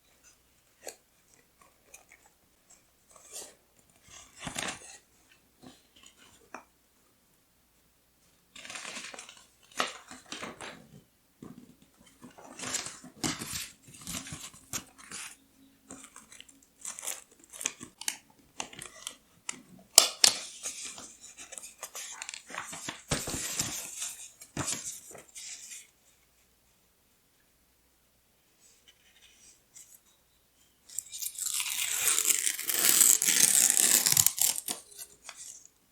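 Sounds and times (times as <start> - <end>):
paper rustling and crinkling: 20.2 - 25.9, 31.4 - 35.7.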